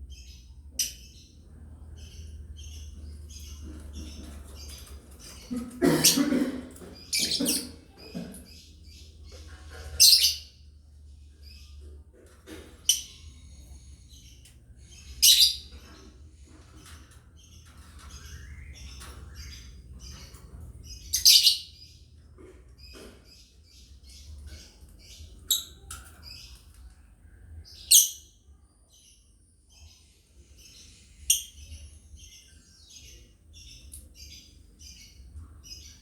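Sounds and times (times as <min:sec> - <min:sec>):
lovebirds chirping: 0:12.5 - 0:28.4.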